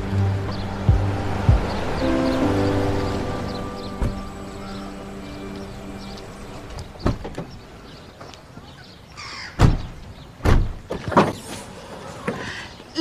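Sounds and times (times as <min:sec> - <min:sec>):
background music: 0:00.0 - 0:08.2
car doors shutting: 0:00.5 - 0:08.3, 0:09.6 - 0:12.5.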